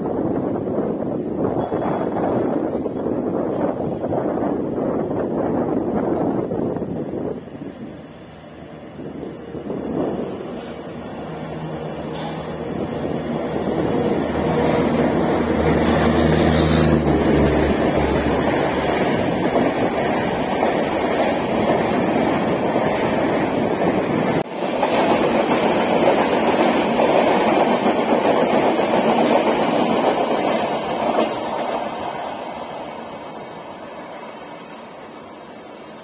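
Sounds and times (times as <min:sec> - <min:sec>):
train wheels rumbling on rails: 0:00.0 - 0:36.0
locomotive hum: 0:00.1 - 0:24.5.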